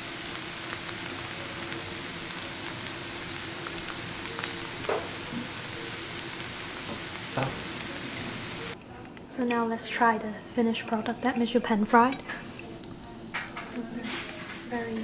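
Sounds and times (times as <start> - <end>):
pancakes sizzling in a pan: 0.0 - 8.8.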